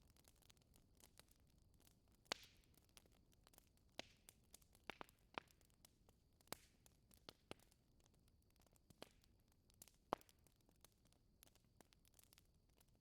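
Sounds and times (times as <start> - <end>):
wood fire crackling: 0.2 - 12.9
sharp pops and snaps: 3.9 - 5.6.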